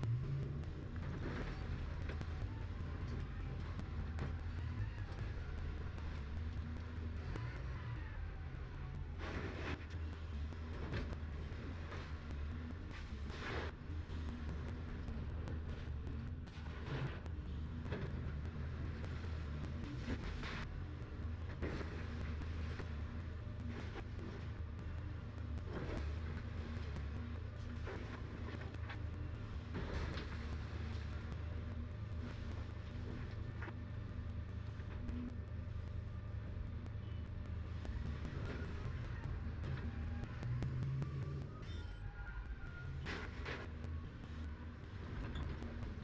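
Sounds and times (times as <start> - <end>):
excavator engine droning: 0.0 - 46.0.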